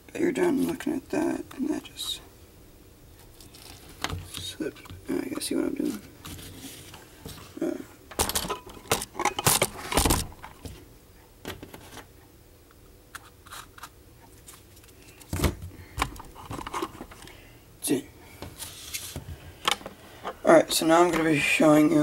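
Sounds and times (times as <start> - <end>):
rustling: 3.2 - 4.9, 5.8 - 7.6.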